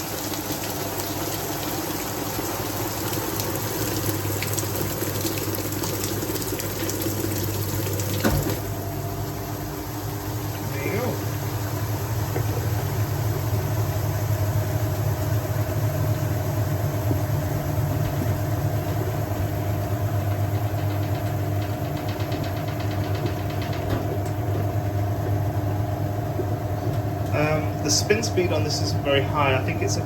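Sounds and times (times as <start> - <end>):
washing machine spinning: 0.0 - 30.0.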